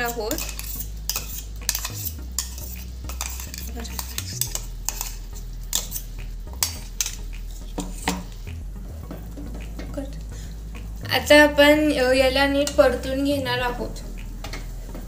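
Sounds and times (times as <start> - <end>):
spoon scraping frying pan: 0.0 - 8.5
light sizzle: 0.0 - 11.0.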